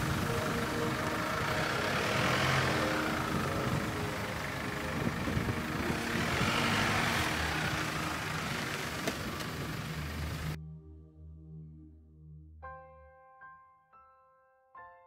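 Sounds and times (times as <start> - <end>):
vehicle engine running low: 0.0 - 10.6.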